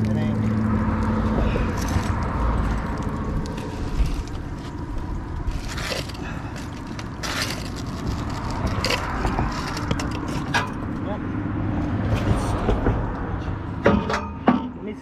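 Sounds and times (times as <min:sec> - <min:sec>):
metal scraping and clanking: 0:05.5 - 0:11.0.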